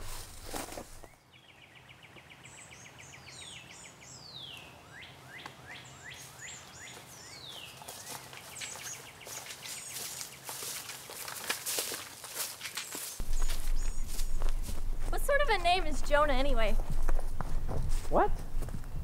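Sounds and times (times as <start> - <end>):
birds singing trills and whistles: 1.0 - 10.8, 12.7 - 14.8
footsteps on dry leaves: 6.1 - 16.0.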